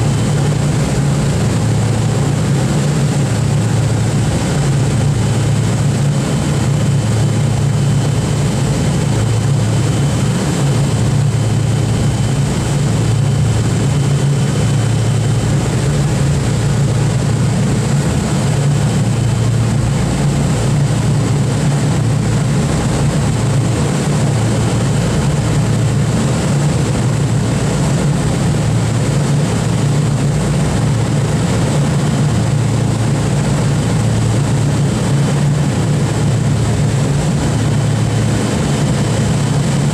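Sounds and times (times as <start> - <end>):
propeller aircraft engines droning: 0.0 - 39.9.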